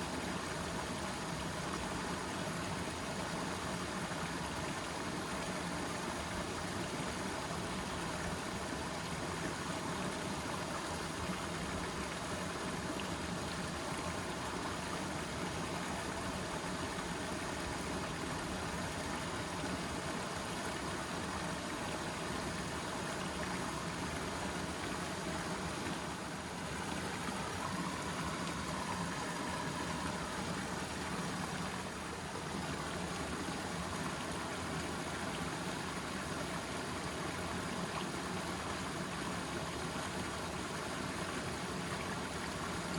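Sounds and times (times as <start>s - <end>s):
water rushing: 2.7s - 42.9s.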